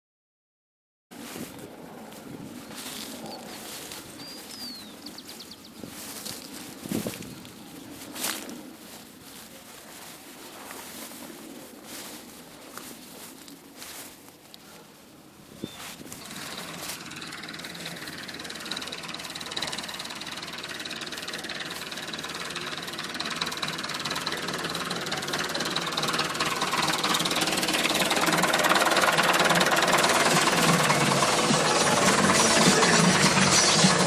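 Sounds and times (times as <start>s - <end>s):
tractor engine knocking: 16.2s - 34.0s.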